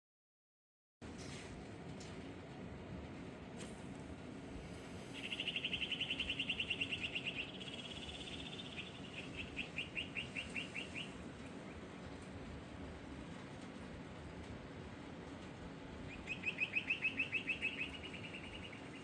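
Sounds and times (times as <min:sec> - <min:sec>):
low background hum: 0:01.0 - 0:19.0
songbird trilling and chirping: 0:05.1 - 0:11.2, 0:16.1 - 0:19.0.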